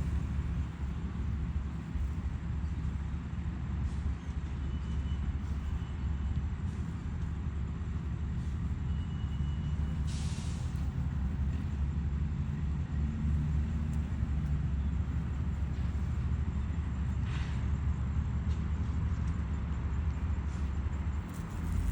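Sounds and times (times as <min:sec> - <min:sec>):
engine rumbling: 0:00.0 - 0:21.9
short hiss: 0:10.1 - 0:10.8.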